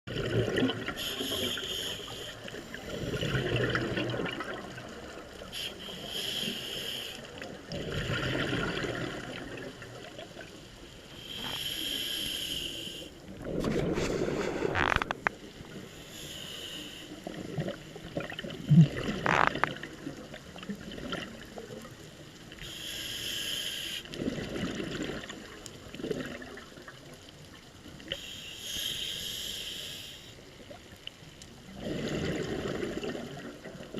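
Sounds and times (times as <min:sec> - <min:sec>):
bubbling exhale: 0:00.1 - 0:04.8, 0:05.5 - 0:09.8, 0:11.2 - 0:15.3, 0:31.7 - 0:33.5
hissing regulator inhale: 0:00.9 - 0:03.2, 0:05.5 - 0:07.3, 0:11.1 - 0:13.2, 0:15.8 - 0:17.3, 0:22.6 - 0:24.1, 0:28.1 - 0:30.4.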